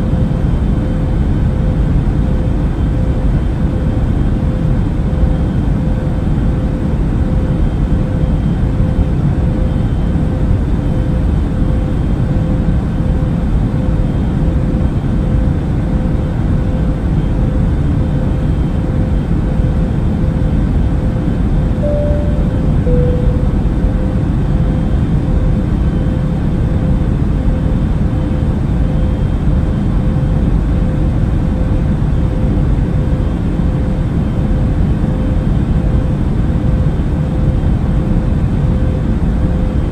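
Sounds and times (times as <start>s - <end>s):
jet engine cabin drone: 0.0s - 39.9s
two-tone cabin chime: 21.8s - 24.2s
faint steady hum: 21.8s - 24.4s.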